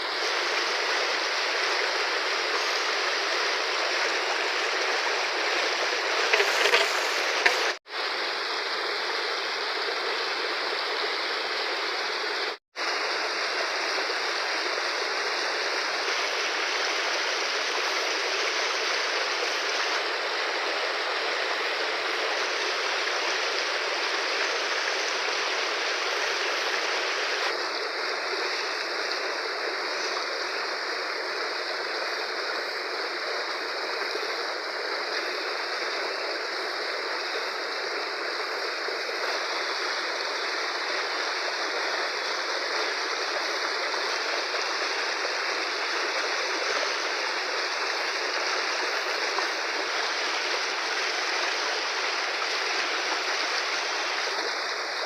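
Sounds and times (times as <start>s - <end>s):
river water rushing: 0.0s - 55.0s
water splashes or knocks: 5.6s - 7.8s.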